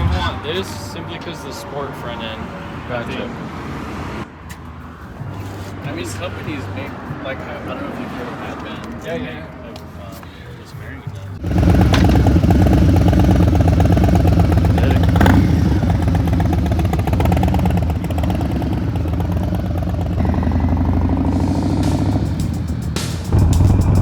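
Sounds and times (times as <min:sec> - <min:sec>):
motorcycle engine accelerating: 0:11.4 - 0:24.0.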